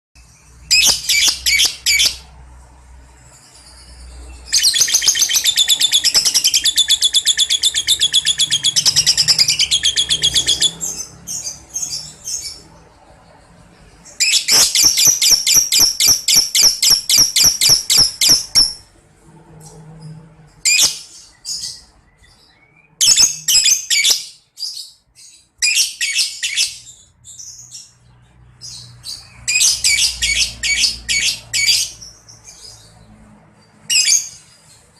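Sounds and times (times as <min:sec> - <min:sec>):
bird chattering shrilly: 0:00.7 - 0:02.2, 0:14.3 - 0:18.8.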